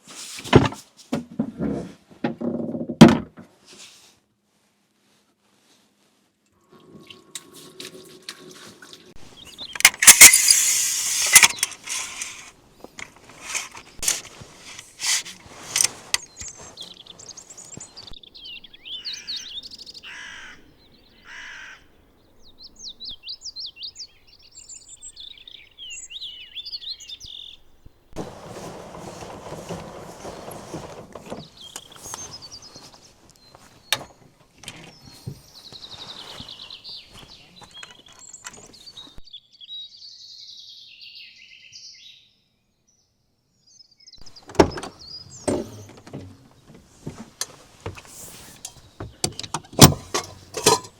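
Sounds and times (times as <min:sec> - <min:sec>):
rustling noise: 0:00.0 - 0:02.2, 0:03.4 - 0:18.2, 0:28.1 - 0:39.2, 0:45.6 - 0:49.2
birds chirping and singing: 0:09.2 - 0:27.7, 0:30.3 - 0:42.4, 0:43.6 - 0:46.8
loud clatter with clicks: 0:09.8 - 0:15.9
harsh cawing calls: 0:19.0 - 0:21.9.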